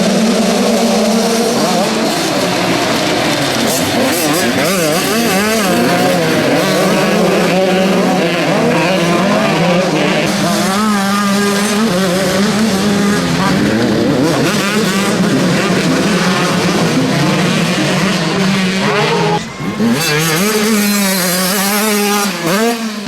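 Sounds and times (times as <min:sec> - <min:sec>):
motocross bike engines revving: 0:00.0 - 0:23.0.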